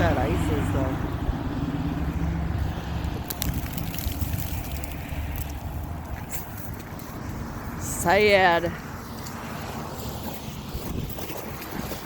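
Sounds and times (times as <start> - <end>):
wind noise on microphone: 0.0 - 9.1, 9.8 - 12.0
vehicle engine rumble: 0.0 - 12.0
faint crackles: 3.1 - 7.2.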